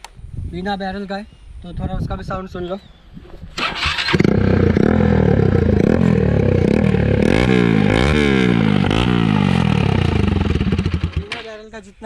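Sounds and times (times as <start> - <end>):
motorcycle engine revving: 3.6 - 11.5.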